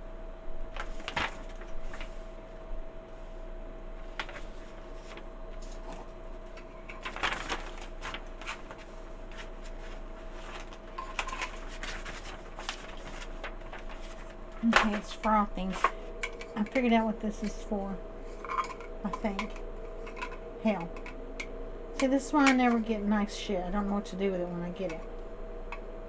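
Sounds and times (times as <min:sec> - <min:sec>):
milk frother humming: 0:15.6 - 0:22.7.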